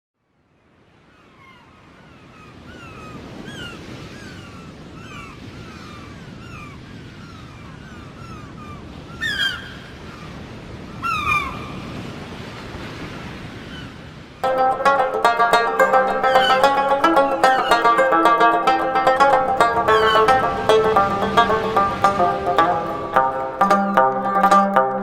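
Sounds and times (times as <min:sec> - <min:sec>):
seagulls calling: 0:01.4 - 0:11.9, 0:13.7 - 0:25.0
surf washing: 0:08.9 - 0:25.0.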